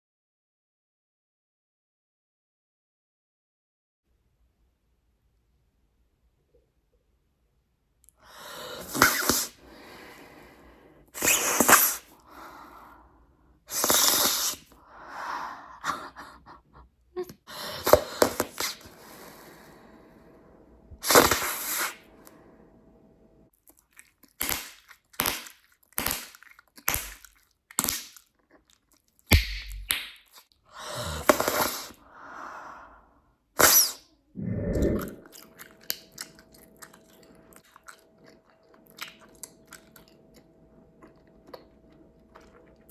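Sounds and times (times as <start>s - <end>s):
breathy blowing and chewing: 33.6s - 42.9s.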